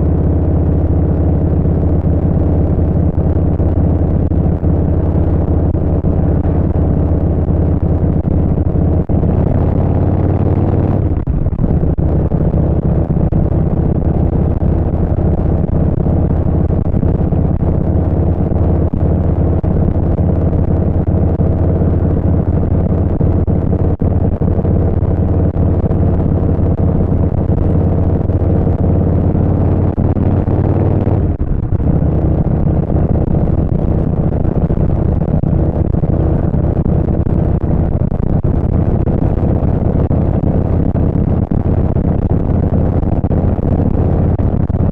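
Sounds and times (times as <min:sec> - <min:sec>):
motorcycle engine cruising: 0:00.0 - 0:44.9.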